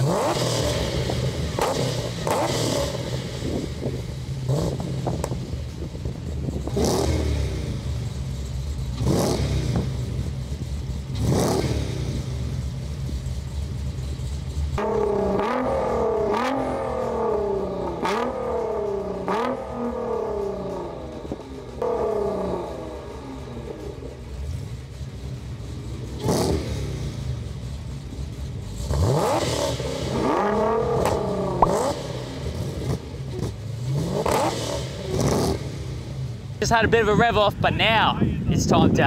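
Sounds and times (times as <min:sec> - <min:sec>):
car engines revving: 0:00.0 - 0:39.0
engine idle rumble: 0:03.0 - 0:15.4, 0:16.8 - 0:28.9.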